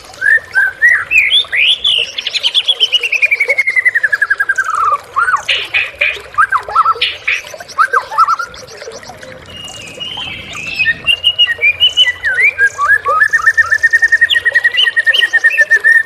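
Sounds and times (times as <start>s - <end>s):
bird whistling song: 0.1s - 16.0s
bird harsh rasping notes: 8.6s - 13.1s
bird descending trill: 9.4s - 12.6s.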